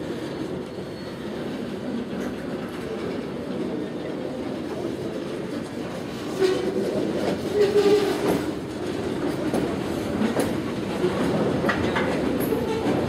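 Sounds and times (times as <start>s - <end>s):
wheels clicking over rail joints: 4.8s - 13.0s.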